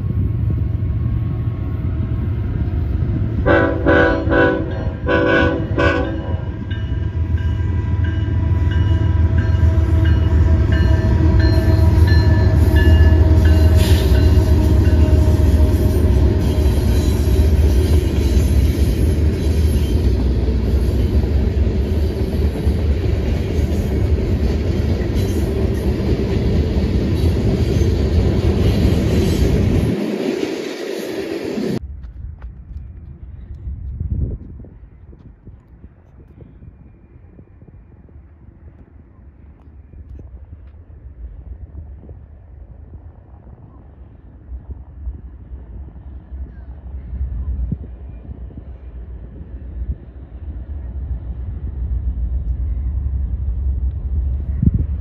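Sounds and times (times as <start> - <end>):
diesel locomotive engine rumble: 0.0 - 55.0
train horn blasts: 3.4 - 17.5.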